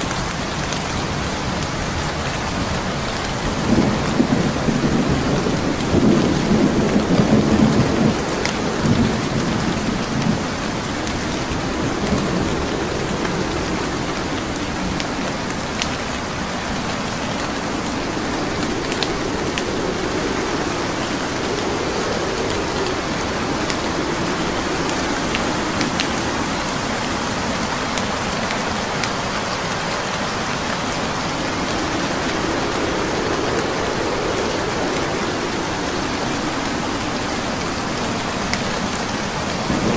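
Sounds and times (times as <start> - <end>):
burning logs crackling: 0.0 - 39.9
heavy rain: 0.0 - 39.9
low rumble: 7.5 - 38.4.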